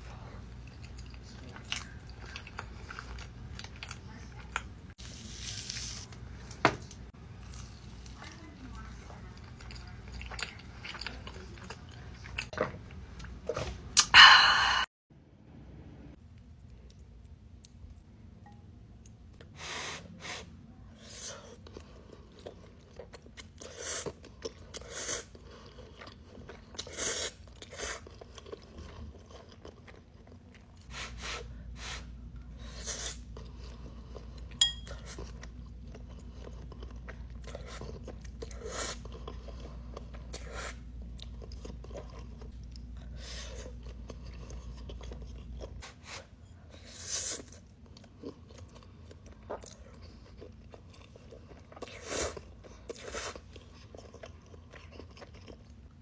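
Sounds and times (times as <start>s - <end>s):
crunchy chewing: 46.8s - 56.0s.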